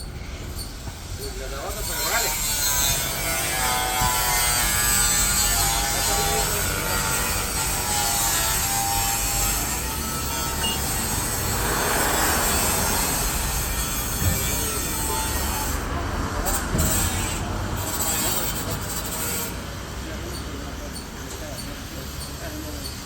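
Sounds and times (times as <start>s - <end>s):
car wash mechanical whir: 5.9s - 18.1s.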